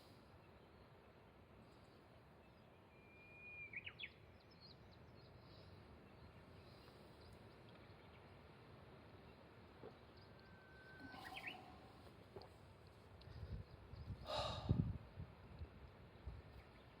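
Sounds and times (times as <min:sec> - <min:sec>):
faint outdoor background noise: 0:00.0 - 0:17.0
bird singing: 0:02.4 - 0:08.3, 0:09.2 - 0:12.3
faint high chirps: 0:09.8 - 0:12.5.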